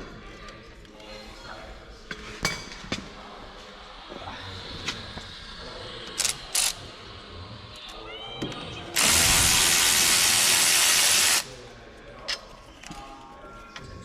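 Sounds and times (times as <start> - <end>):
power tool hissing: 9.0 - 11.5.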